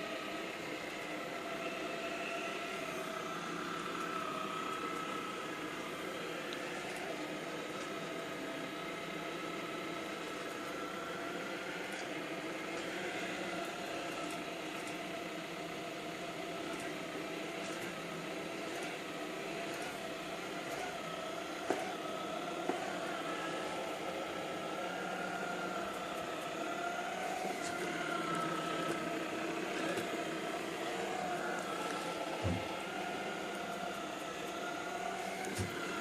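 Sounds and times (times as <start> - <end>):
robot vacuum cleaner whirring: 0.0 - 36.0.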